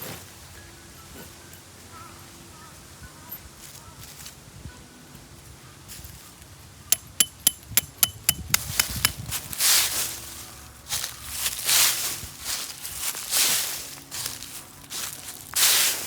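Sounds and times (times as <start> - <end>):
rustling in dry leaves: 0.0 - 6.7, 9.2 - 16.0
sharp metallic knocks: 6.9 - 9.2.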